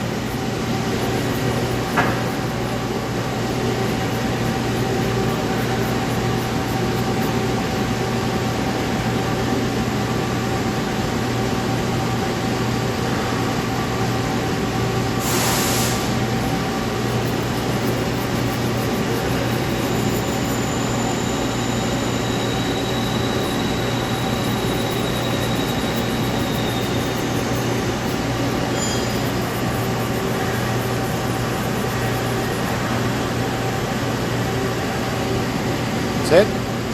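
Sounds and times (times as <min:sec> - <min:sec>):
lathe running with hum: 0:00.0 - 0:36.9
brief hiss: 0:15.2 - 0:16.2.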